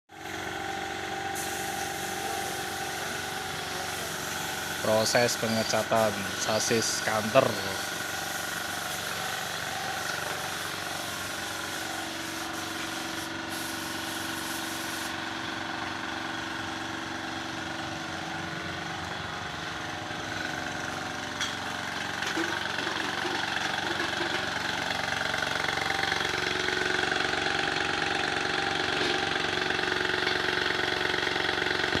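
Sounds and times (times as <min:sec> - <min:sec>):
motor running with hum: 0:00.1 - 0:32.0.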